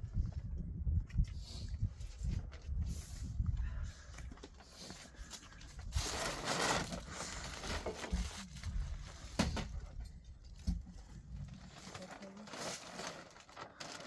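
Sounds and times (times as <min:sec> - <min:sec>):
plastic sheeting rustling: 0:05.8 - 0:09.9, 0:11.2 - 0:14.0.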